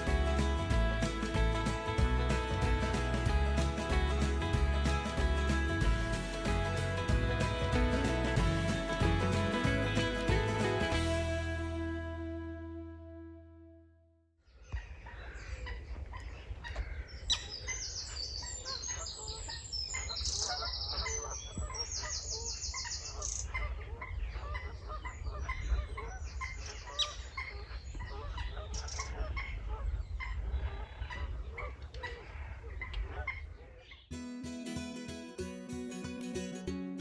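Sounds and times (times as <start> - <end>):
many birds calling: 14.6 - 34.1
wind rumble on microphone: 23.4 - 33.8.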